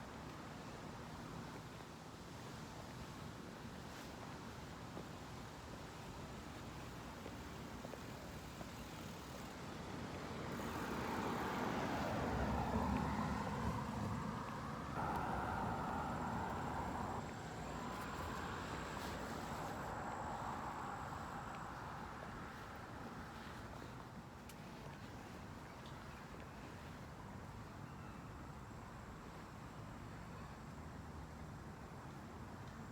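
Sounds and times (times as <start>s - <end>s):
vehicle passing by: 10.5s - 22.8s.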